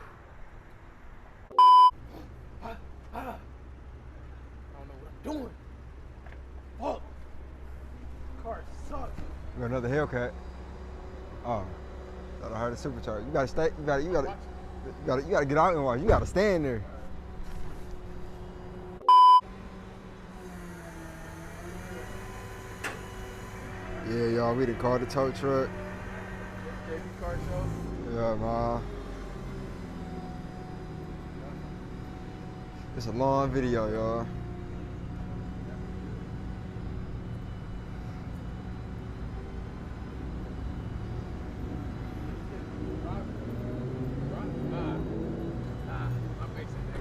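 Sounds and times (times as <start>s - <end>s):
vehicle engine and road noise: 0.0s - 47.0s
censor beep tone: 1.5s - 2.0s, 19.0s - 19.4s
faint steady tones: 30.2s - 47.0s.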